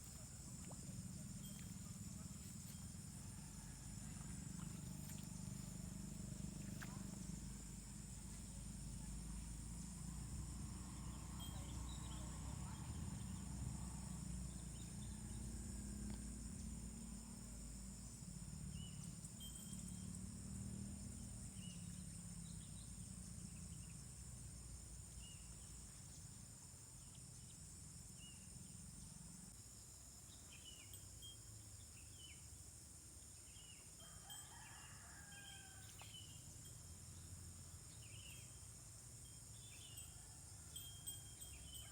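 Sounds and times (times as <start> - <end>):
high insect drone: 0.0 - 41.9
distant rooster crowing: 34.0 - 36.2.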